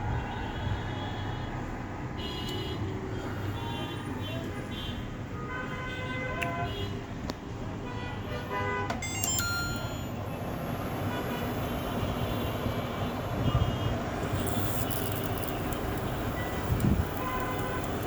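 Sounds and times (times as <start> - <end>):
street traffic noise: 0.0 - 18.0
clicks: 8.9 - 10.0.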